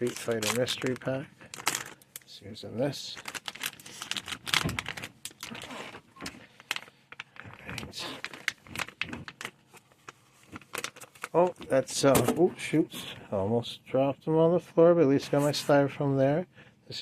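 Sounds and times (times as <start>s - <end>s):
packaging crinkling and rustling: 0.0s - 12.3s.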